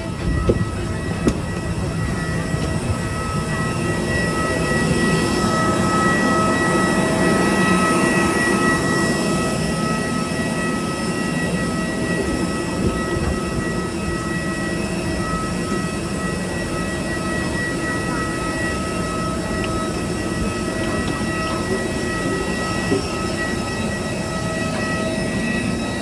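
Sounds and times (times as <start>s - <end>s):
vehicle ride rumble: 0.0s - 4.0s
high-pitched whines: 0.0s - 26.0s.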